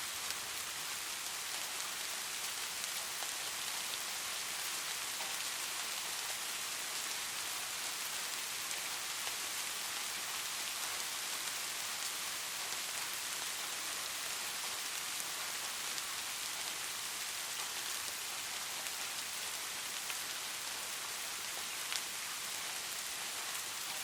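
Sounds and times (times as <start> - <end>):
light rain falling: 0.0 - 24.0.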